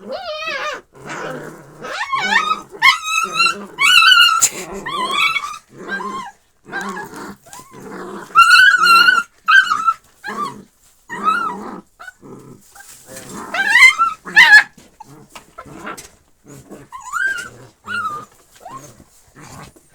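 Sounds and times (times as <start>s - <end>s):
dogs yelping and whining: 0.0s - 19.8s
dogs snarling: 0.4s - 10.6s.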